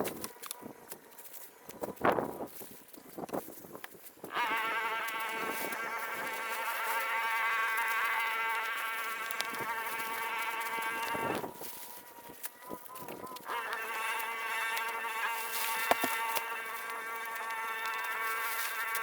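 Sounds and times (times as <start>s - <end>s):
small motor whining: 4.2s - 19.0s.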